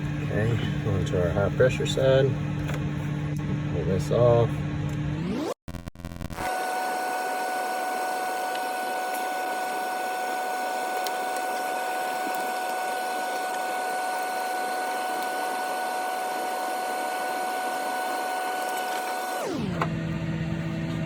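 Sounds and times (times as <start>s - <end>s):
machine hum: 0.0s - 21.0s
high even whine: 3.3s - 21.0s.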